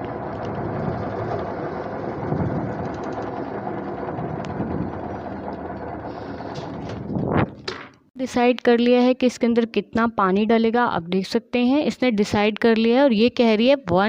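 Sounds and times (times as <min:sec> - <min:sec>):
washing machine tub whirring: 0:00.0 - 0:08.1.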